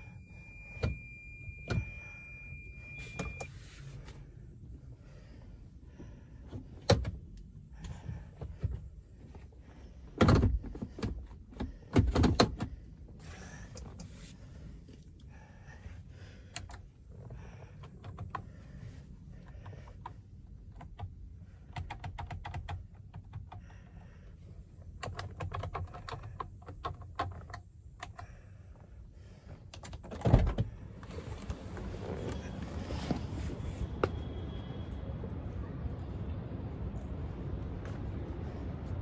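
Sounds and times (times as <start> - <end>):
faint low rumble: 30.5 - 39.0.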